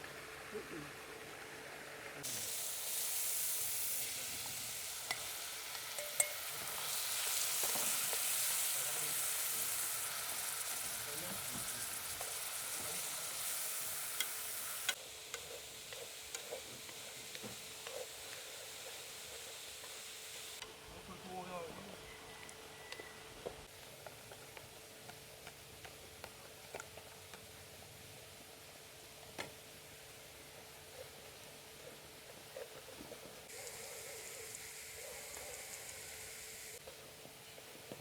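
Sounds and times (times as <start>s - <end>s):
food sizzling in a pan: 0.1s - 20.6s, 33.4s - 38.0s.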